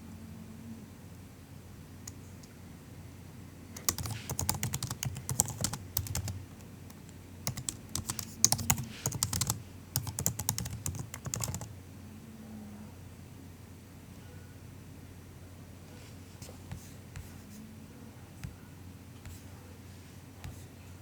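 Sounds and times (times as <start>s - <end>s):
typing on laptop keyboard: 3.8s - 11.7s.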